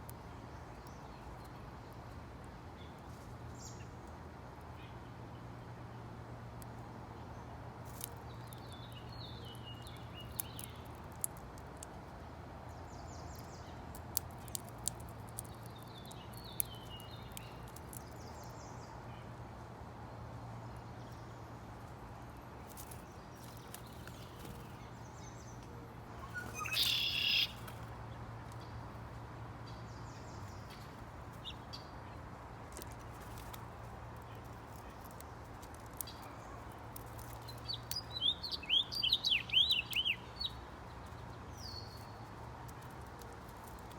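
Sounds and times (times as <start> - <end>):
songbirds chirping: 0.0 - 43.9
harsh bird call: 26.2 - 27.7.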